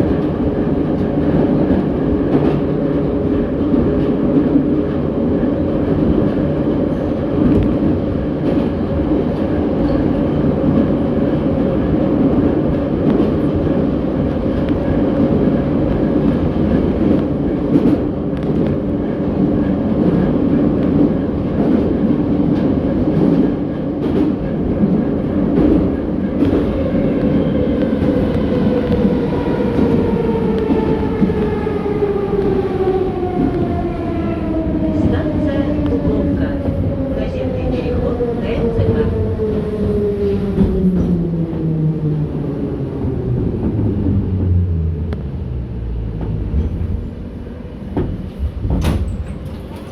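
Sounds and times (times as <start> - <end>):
metro train wheels rumbling: 0.0 - 49.9.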